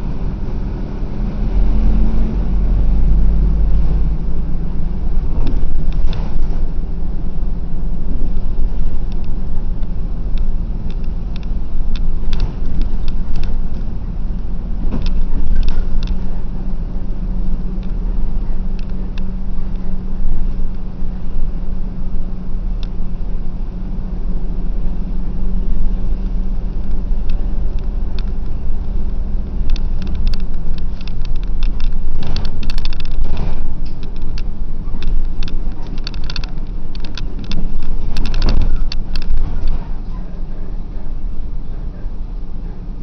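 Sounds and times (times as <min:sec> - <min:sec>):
bus engine and road drone: 0:00.0 - 0:43.0
clicks and rattles: 0:05.3 - 0:06.6, 0:08.2 - 0:16.4, 0:26.1 - 0:40.1.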